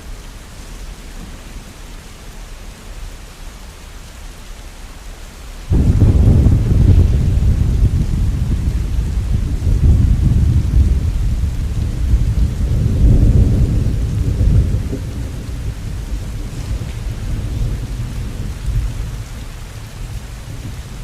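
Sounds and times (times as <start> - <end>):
steady rain: 0.0 - 21.0
rolling thunder: 5.7 - 21.0.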